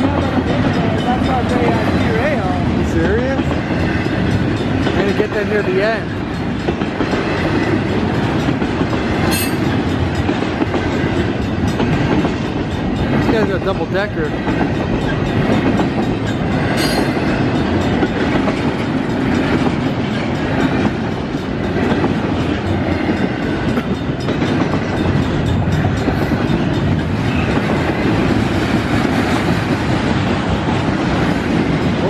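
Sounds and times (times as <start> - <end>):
freight train wheels clattering: 0.0 - 32.0.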